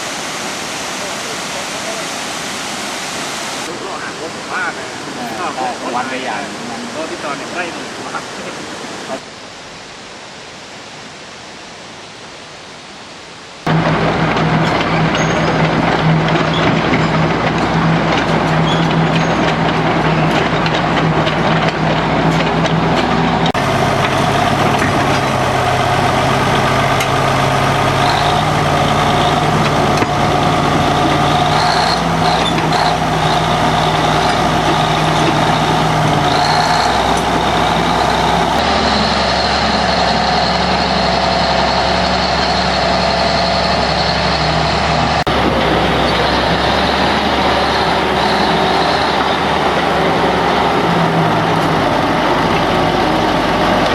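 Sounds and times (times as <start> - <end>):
heavy diesel engine running: 13.7 - 53.9.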